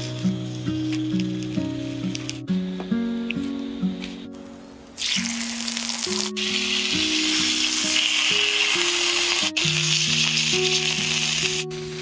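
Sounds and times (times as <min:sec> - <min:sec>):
background music: 0:00.0 - 0:12.0
meat sizzling in hot oil: 0:05.0 - 0:11.6.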